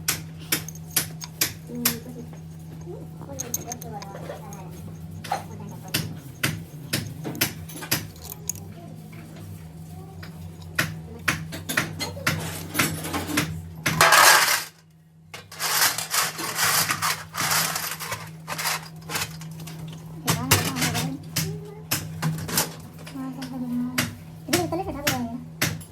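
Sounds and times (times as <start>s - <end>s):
steady low hum: 0.0s - 25.9s
small metal parts clinking: 0.5s - 8.7s, 13.9s - 21.1s.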